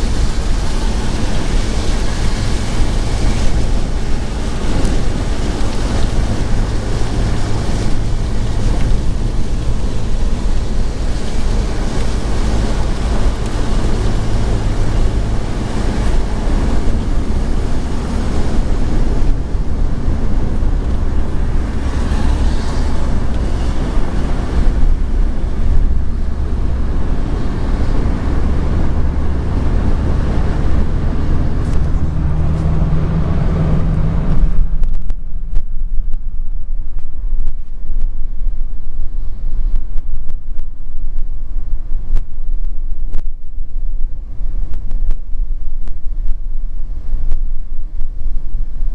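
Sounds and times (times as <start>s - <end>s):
tyres hissing on wet road: 0.0s - 34.8s
low engine hum: 0.0s - 48.9s.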